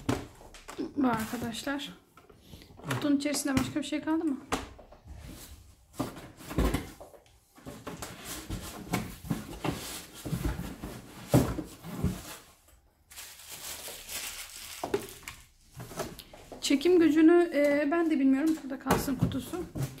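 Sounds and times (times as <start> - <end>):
packaging rustling: 7.8 - 16.2.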